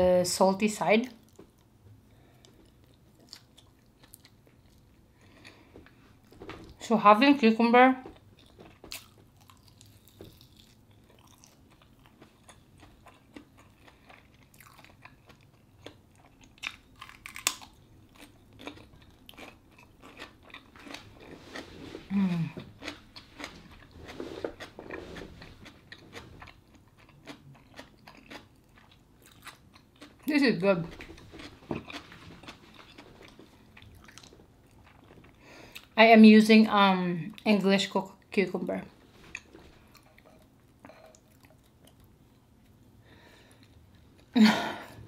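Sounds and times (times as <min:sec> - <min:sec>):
woman's voice: 0:00.0 - 0:01.2, 0:06.8 - 0:08.1, 0:30.3 - 0:31.0, 0:36.0 - 0:38.9
person chewing with crunching clicks: 0:01.2 - 0:06.8, 0:08.0 - 0:36.0, 0:39.3 - 0:42.8.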